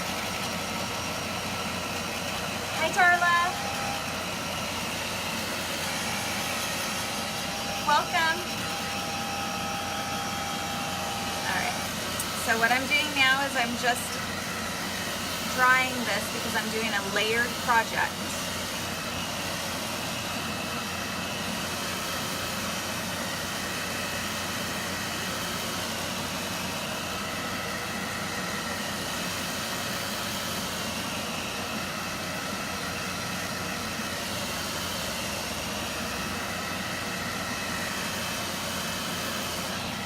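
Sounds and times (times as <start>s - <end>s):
hot-air dryer blowing: 0.0s - 40.0s.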